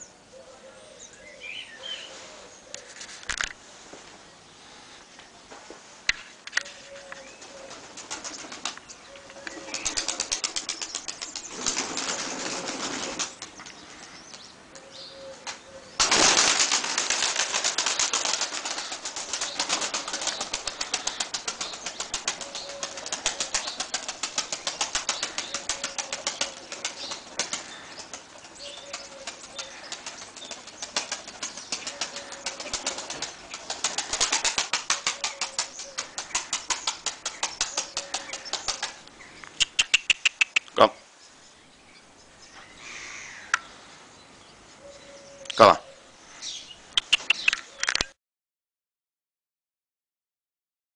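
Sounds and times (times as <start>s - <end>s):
pigeons flapping wings: 7.4s - 8.8s, 9.4s - 13.6s, 15.4s - 39.0s, 47.0s - 48.0s.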